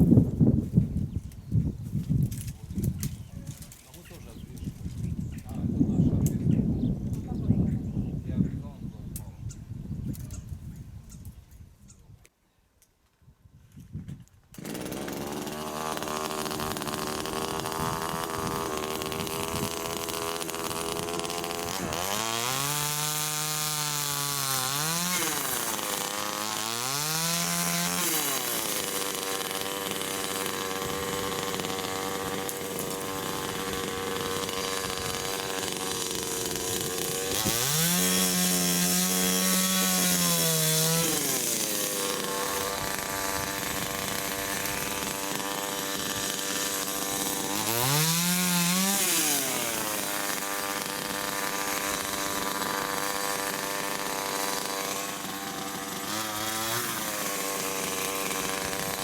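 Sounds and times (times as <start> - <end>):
chainsaw engine revving: 14.6 - 59.0.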